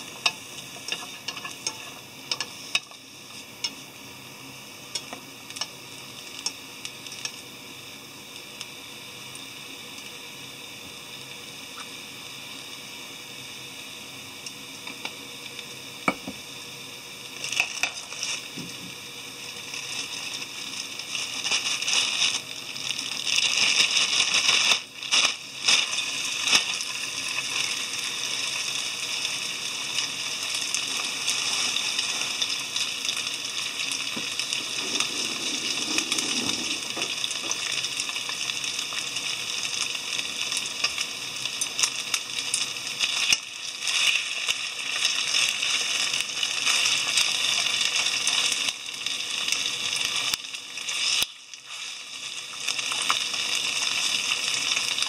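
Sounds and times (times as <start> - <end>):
food sizzling in hot oil: 0.0 - 55.0.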